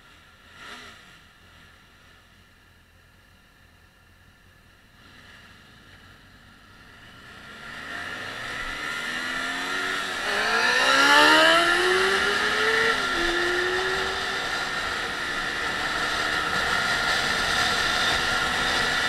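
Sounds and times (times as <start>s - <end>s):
motorcycle engines accelerating: 4.9s - 19.0s.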